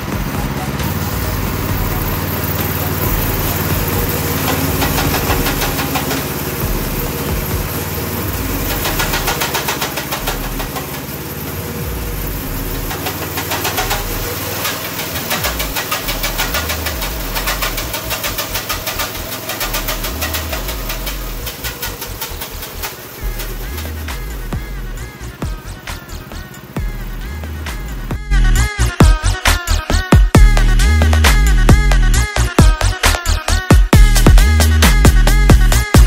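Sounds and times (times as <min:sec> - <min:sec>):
drive chain slapping: 0:00.0 - 0:28.1
small engine revving: 0:00.0 - 0:36.0.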